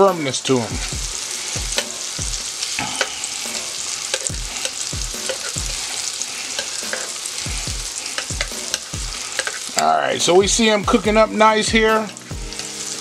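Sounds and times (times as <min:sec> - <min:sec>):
apple slices sizzling in butter: 0:00.0 - 0:13.0
metal tongs clicking on pan: 0:01.7 - 0:01.9, 0:04.0 - 0:07.3, 0:08.1 - 0:09.9.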